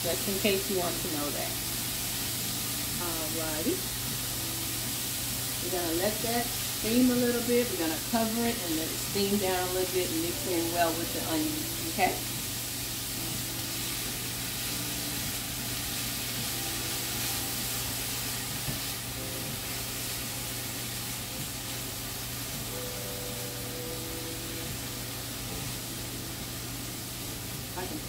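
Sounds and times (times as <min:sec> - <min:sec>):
vegetables sizzling in oil: 0:00.0 - 0:28.0
turner stirring in skillet: 0:12.4 - 0:22.5.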